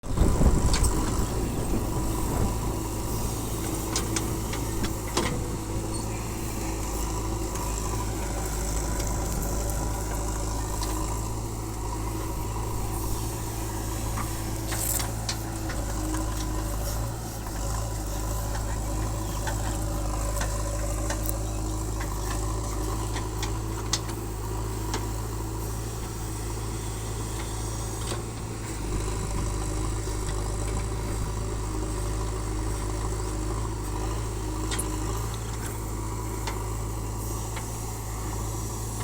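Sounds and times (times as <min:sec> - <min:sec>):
backhoe loader engine running: 0:00.0 - 0:39.0.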